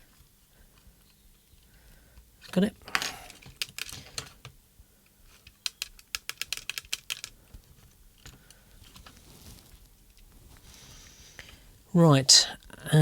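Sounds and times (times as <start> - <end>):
small plastic clicks and taps: 5.3 - 9.1.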